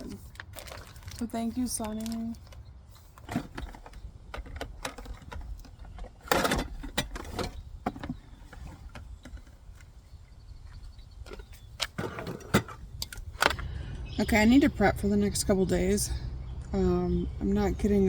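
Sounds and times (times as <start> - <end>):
steady low rumble: 12.7 - 18.0.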